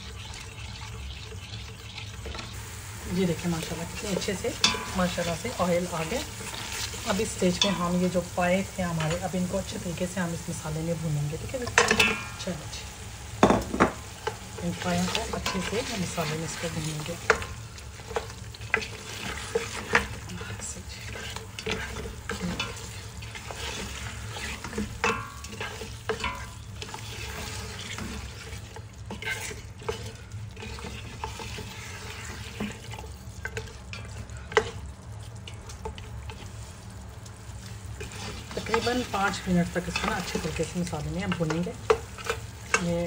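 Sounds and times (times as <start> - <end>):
meat frying in oil: 0.0 - 43.0
spatula scraping a pot: 3.5 - 7.9, 14.2 - 36.8, 37.6 - 43.0.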